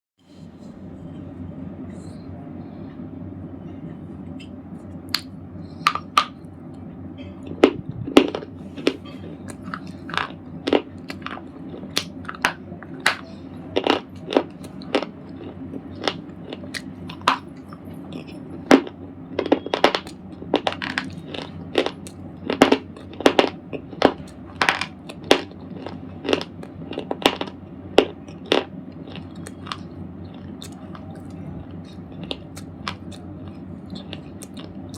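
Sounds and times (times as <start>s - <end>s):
low background hum: 0.2s - 34.9s
slate ball crunching: 7.5s - 34.9s.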